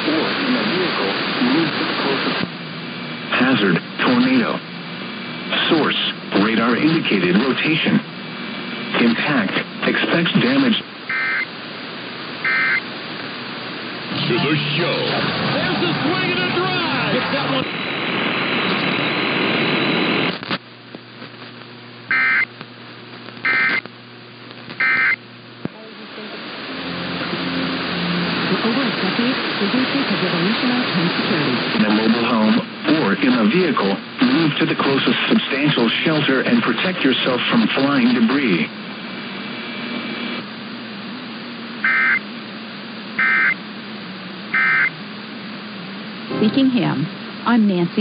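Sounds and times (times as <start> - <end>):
faint hum: 0.0 - 48.0
radio static: 0.0 - 48.0
digital data bursts: 11.1 - 11.5, 12.4 - 12.8, 22.1 - 22.5, 23.4 - 23.8, 24.8 - 25.2, 41.8 - 42.2, 43.2 - 43.6, 44.6 - 44.9.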